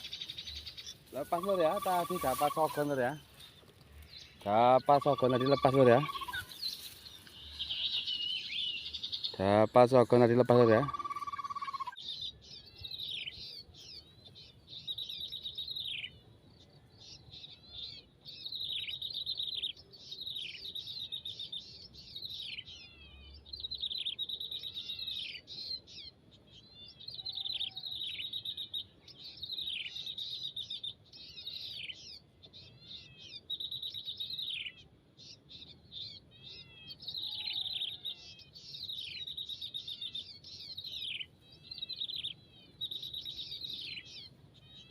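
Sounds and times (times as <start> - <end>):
songbird chirping: 0.0 - 44.9.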